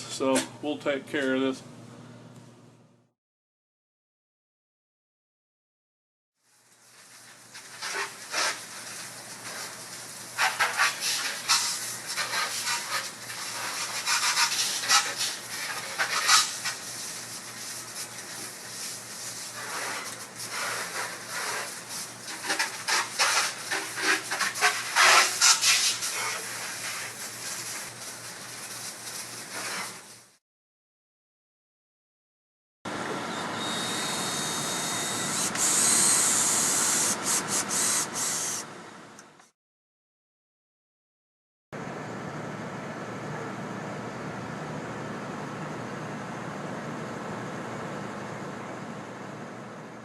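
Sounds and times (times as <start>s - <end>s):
rough scraping and rubbing: 7.6s - 9.8s, 10.4s - 30.3s.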